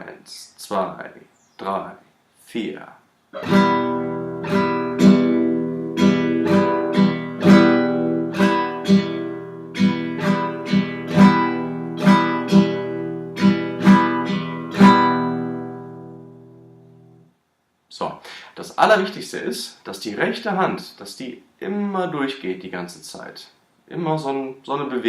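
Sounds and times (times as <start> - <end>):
acoustic guitar strumming: 3.4 - 17.3.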